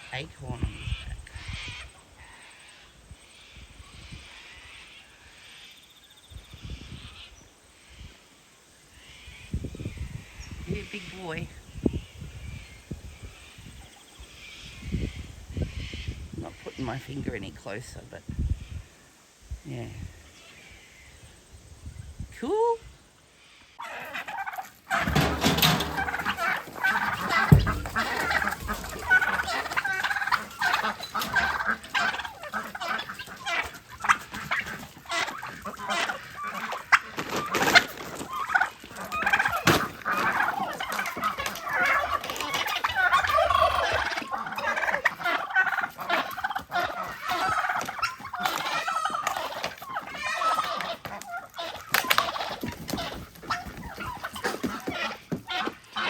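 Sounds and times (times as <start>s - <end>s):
turkeys gobbling: 23.7s - 56.0s
sharp knocks: 27.5s - 28.4s.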